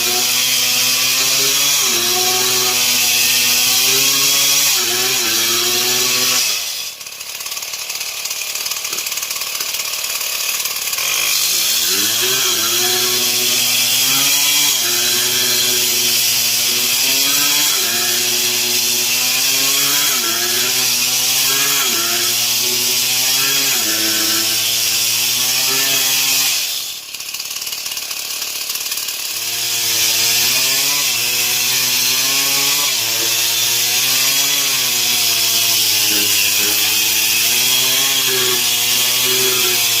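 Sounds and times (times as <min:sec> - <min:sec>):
chainsaw cutting wood: 0:00.0 - 0:40.0.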